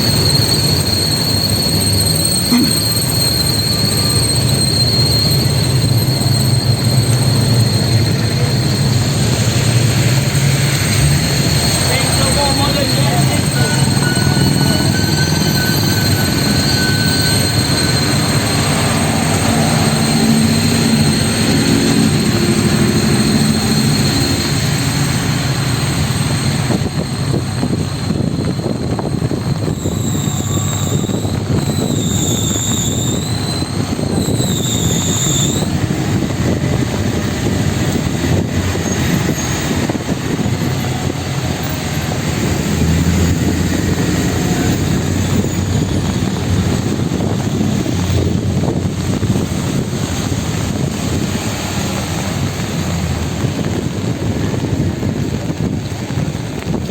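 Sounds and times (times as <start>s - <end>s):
wavering high tone: 0.0s - 25.6s
traffic on wet street: 0.0s - 56.9s.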